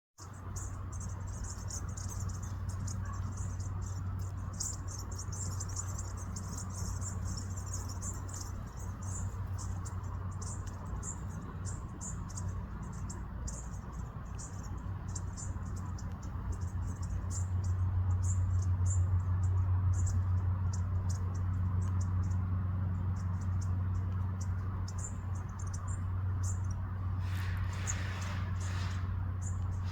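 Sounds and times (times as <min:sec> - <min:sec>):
steady low hum: 0:00.2 - 0:29.9
high thin bird calls: 0:24.9 - 0:29.9.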